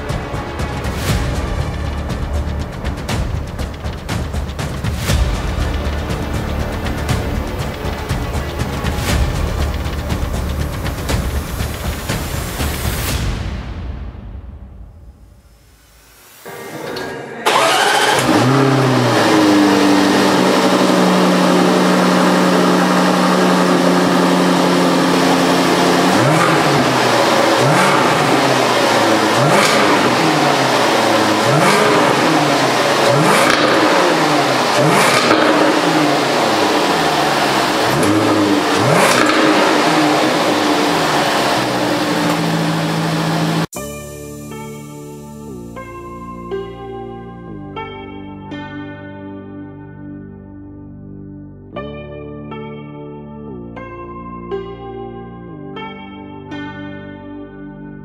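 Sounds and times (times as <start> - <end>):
car engine revving and idling: 0.0 - 13.2, 17.4 - 43.7
exhaust cracks: 0.0 - 13.6, 17.4 - 43.7.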